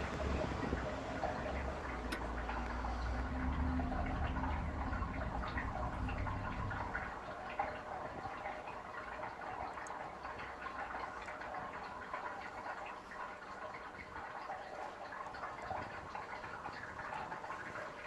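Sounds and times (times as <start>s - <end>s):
low rumble: 0.0s - 8.0s
water heating in a kettle: 0.0s - 18.0s
small pops and ticks: 1.5s - 3.3s.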